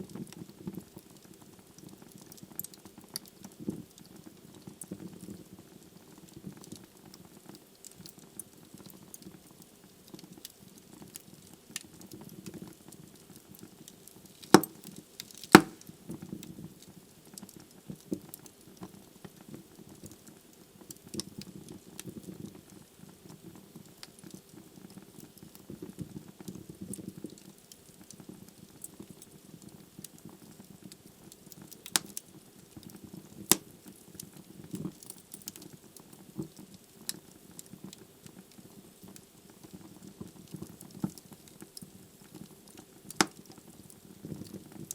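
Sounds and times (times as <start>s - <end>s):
fire crackling: 0.0s - 44.9s
loud sharp wood pops: 14.6s - 14.8s, 15.4s - 15.8s.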